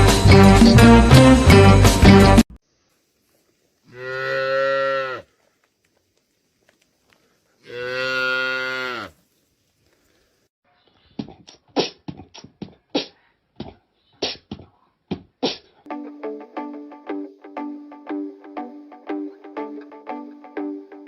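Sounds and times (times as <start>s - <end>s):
cow mooing: 3.9s - 5.3s, 7.6s - 9.2s
beatboxing mouth percussion: 11.1s - 15.8s.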